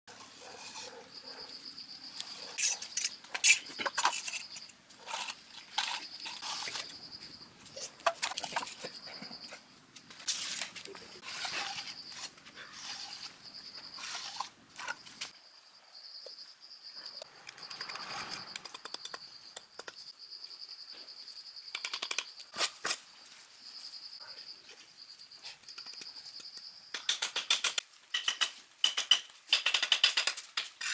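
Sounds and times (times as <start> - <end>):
trowel scraping mortar: 2.4 - 6.9, 10.2 - 15.3
tools tapping on concrete: 25.8 - 30.9.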